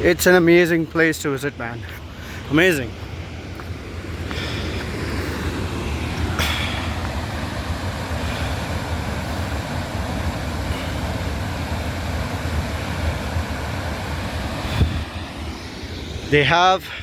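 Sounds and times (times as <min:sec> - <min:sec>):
waterfall rushing: 0:03.9 - 0:17.0.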